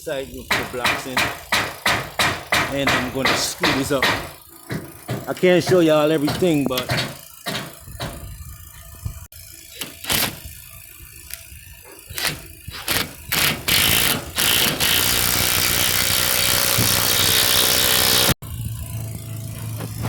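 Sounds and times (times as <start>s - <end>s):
knocks: 0.5s - 8.3s
power screwdriver driving screws: 9.7s - 10.5s, 11.2s - 18.4s.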